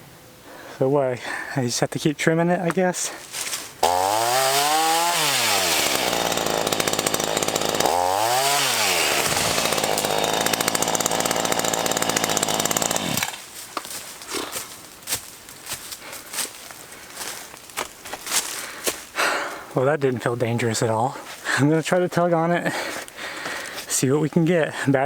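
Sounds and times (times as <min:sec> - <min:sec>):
chainsaw cutting wood: 0:02.7 - 0:14.7.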